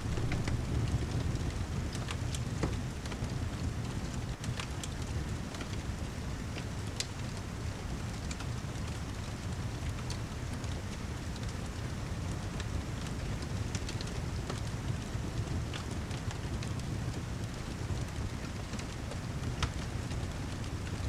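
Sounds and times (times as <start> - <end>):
fireplace crackling: 0.0 - 1.6
steady rain: 0.0 - 21.0.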